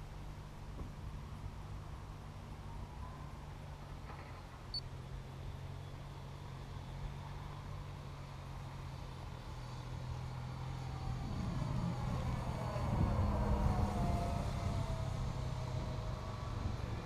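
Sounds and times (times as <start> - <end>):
model plane motor drone: 5.2 - 17.0.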